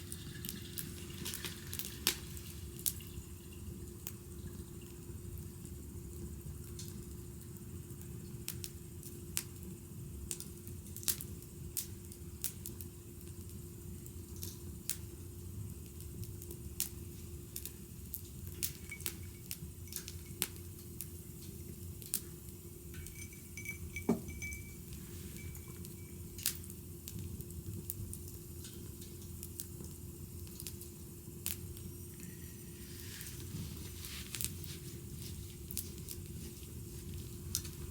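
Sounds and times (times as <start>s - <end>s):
wood fire crackling and popping: 0.0s - 3.2s, 3.8s - 37.9s
faint steady hum: 0.0s - 37.9s
low steady rumble: 22.7s - 28.4s.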